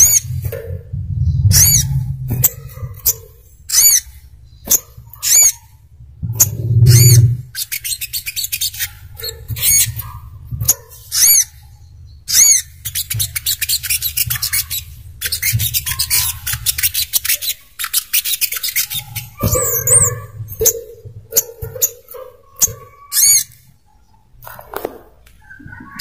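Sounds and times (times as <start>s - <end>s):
steady low hum: 0.0s - 17.8s.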